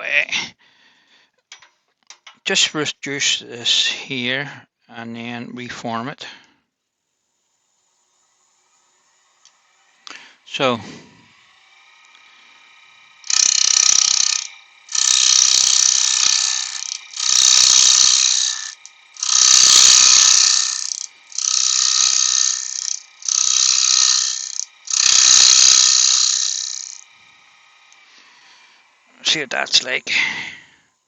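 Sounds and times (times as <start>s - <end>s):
lathe tool cutting wood: 7.1s - 30.3s
lathe humming: 7.1s - 31.0s.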